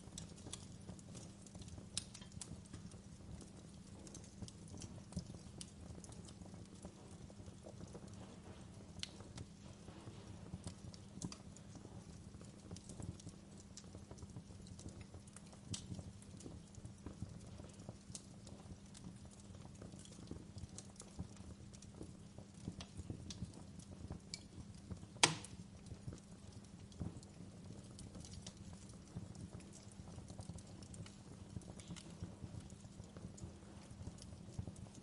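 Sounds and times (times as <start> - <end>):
log fire crackling: 0.0 - 35.0
loud sharp pop: 25.2 - 25.5.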